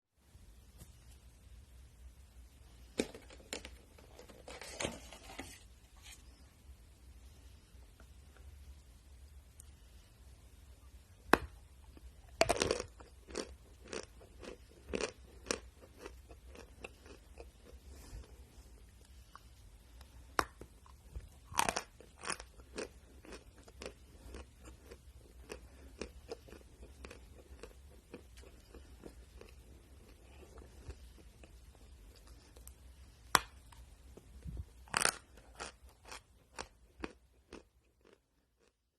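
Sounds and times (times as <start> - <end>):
chewing crunches: 11.9 - 18.3, 20.4 - 32.7, 34.8 - 38.8.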